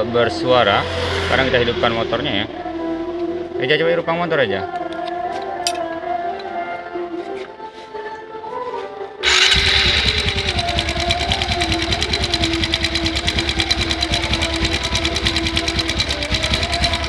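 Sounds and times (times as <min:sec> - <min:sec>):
motorcycle engine starting and idling: 0:09.2 - 0:17.0.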